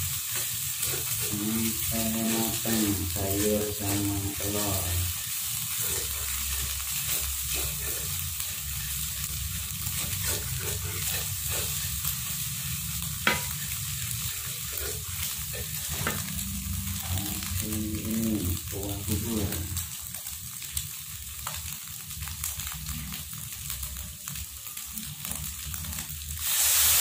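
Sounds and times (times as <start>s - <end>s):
food sizzling in a wok: 0.0s - 27.0s
spatula scraping a pan: 0.2s - 17.4s.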